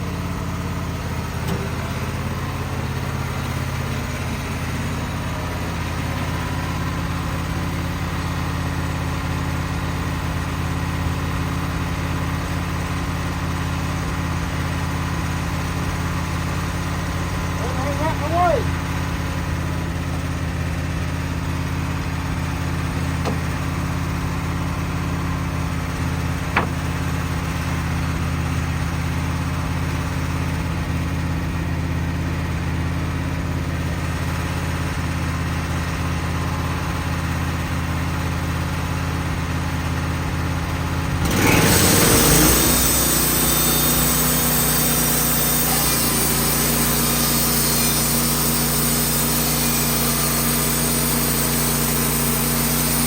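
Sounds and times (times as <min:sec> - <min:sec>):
band sawmill running: 0:00.0 - 0:53.0
loud hiss: 0:41.5 - 0:53.0.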